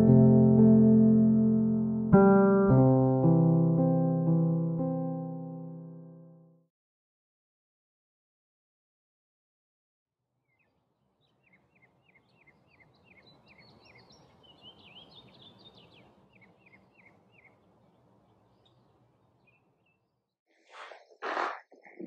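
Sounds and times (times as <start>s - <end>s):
small birds chirping: 10.4s - 20.3s.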